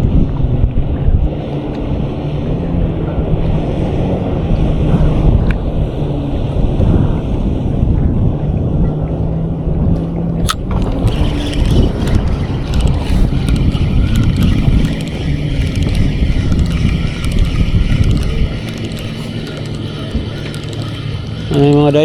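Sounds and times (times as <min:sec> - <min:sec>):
low droning hum: 0:00.0 - 0:22.0
wind buffeting microphone: 0:00.0 - 0:22.0.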